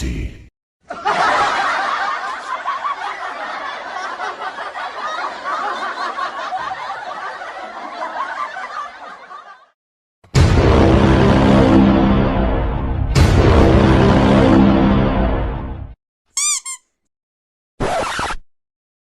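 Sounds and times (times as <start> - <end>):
continuous laughing: 0.8 - 9.8
loud music: 10.3 - 16.0.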